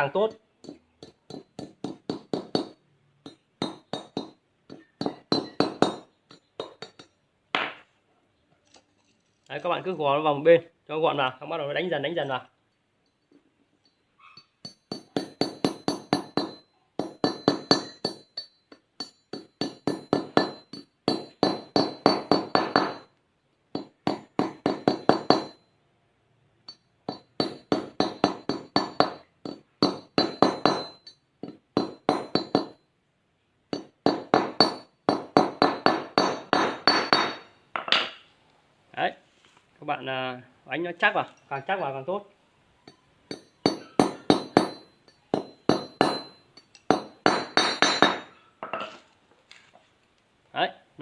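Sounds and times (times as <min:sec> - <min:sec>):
hammer striking metal: 0:00.6 - 0:07.8, 0:14.6 - 0:23.1, 0:23.8 - 0:25.6, 0:26.7 - 0:32.8, 0:33.7 - 0:38.2, 0:42.9 - 0:48.8.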